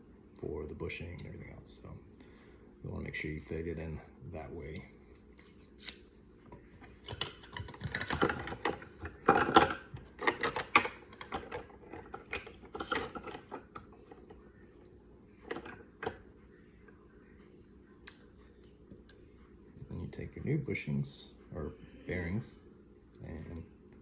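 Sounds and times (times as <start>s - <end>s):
plastic parts clicking and rattling: 7.1s - 14.3s.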